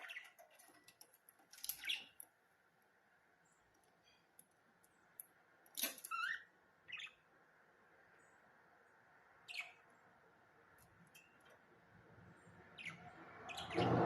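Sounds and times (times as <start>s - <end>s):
budgerigars chirping: 0.0s - 0.5s, 6.1s - 7.2s, 9.5s - 9.9s, 12.7s - 14.0s.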